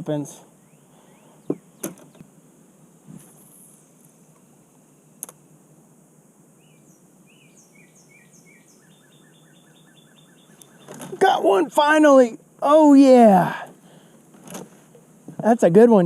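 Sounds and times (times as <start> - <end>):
faint outdoor ambience: 0.0 - 16.0
bird chirping: 0.5 - 2.3, 6.6 - 11.6.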